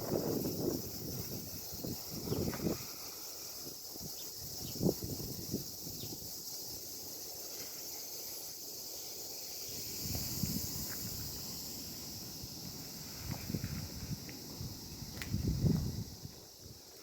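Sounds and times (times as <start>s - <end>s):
wind rumble on microphone: 0.0s - 3.0s, 3.7s - 6.4s, 9.8s - 16.9s
cicadas chorus: 0.0s - 17.0s.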